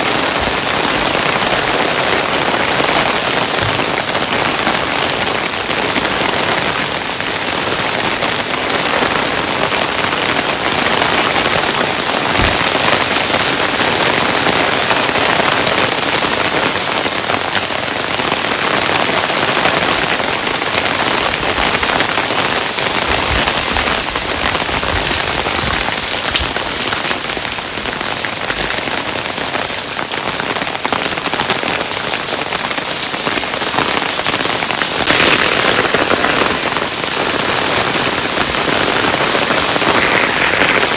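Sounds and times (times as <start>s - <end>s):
hailstones pelting a hard surface: 0.0s - 40.9s
low thuds: 12.3s - 13.2s, 22.9s - 27.0s.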